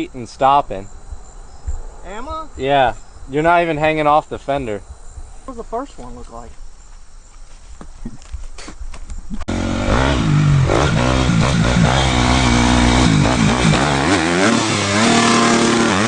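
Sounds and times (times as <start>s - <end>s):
dirt bike engine revving: 9.4s - 16.0s.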